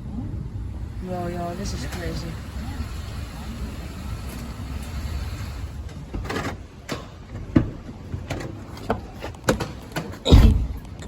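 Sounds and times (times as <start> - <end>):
low steady rumble: 0.0 - 6.2
irregular knocks and thuds: 6.1 - 10.8.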